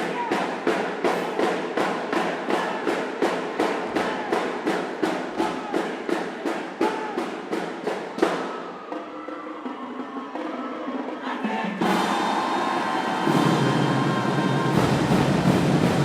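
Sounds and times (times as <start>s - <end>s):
marching band drums and horns: 0.0s - 16.0s
loud drum hit: 11.8s - 16.0s.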